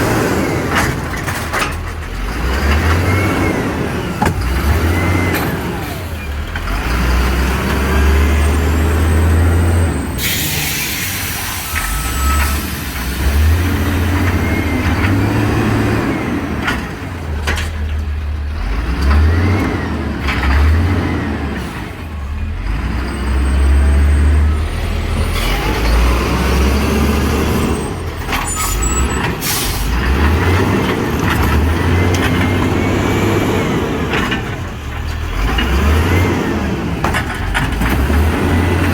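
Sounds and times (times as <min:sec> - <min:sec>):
garbage truck diesel engine revving: 0:00.0 - 0:38.9
air brake hissing: 0:10.1 - 0:13.3, 0:28.5 - 0:30.0.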